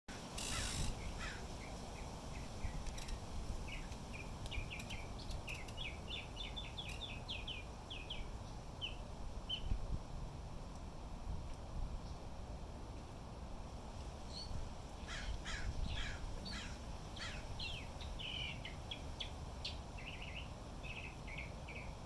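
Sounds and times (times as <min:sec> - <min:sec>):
wind rumble on microphone: 0:00.1 - 0:22.0
small birds chirping: 0:00.2 - 0:09.8, 0:14.2 - 0:22.0.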